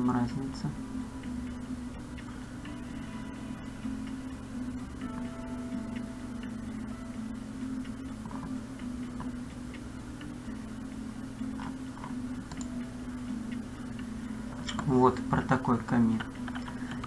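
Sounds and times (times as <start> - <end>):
low electrical hum: 0.0 - 17.0
computer mouse clicks: 11.5 - 12.8, 13.4 - 17.0.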